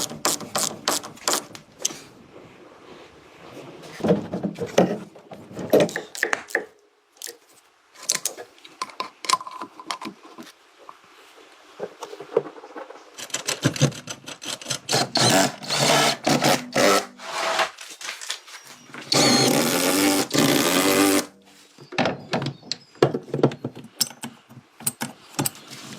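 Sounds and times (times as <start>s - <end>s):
power tool running: 14.9s - 17.6s, 19.1s - 21.3s.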